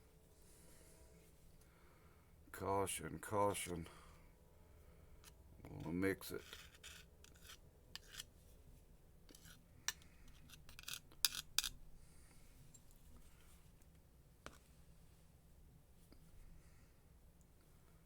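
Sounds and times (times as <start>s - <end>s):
light tool clicks and scrapes: 5.2s - 8.4s, 9.3s - 11.8s.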